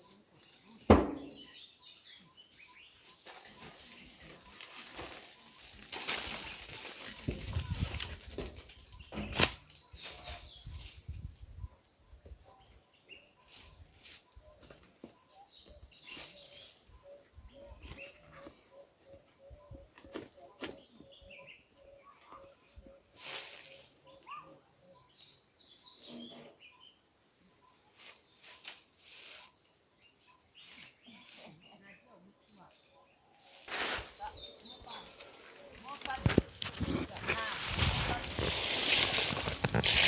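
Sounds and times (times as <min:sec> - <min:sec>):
high insect trill: 0:00.0 - 0:14.8, 0:15.4 - 0:40.0
bird chirps: 0:00.7 - 0:04.8, 0:14.4 - 0:23.1
knocks: 0:00.9 - 0:01.4.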